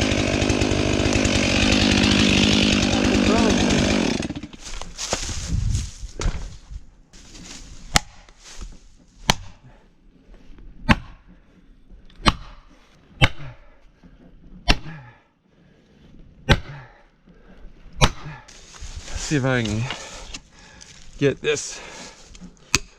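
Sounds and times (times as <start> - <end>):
tool striking tree: 0.0 - 5.3, 7.9 - 9.6, 10.8 - 11.3, 12.2 - 13.6, 14.6 - 15.0, 16.4 - 16.8, 18.0 - 21.0, 22.3 - 22.9.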